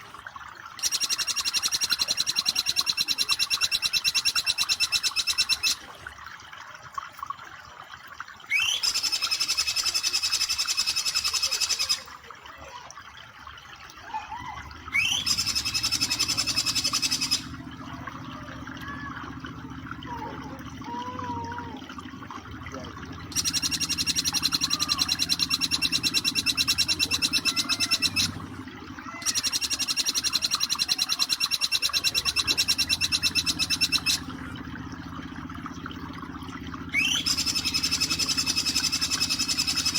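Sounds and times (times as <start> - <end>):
bird rapid trill: 0.8 - 5.8, 8.5 - 12.1, 14.9 - 17.7, 23.2 - 34.4, 36.9 - 39.9
soft bird chirps: 0.8 - 5.8, 8.5 - 12.1, 14.9 - 18.2, 23.2 - 28.5, 29.2 - 34.5, 36.4 - 39.9.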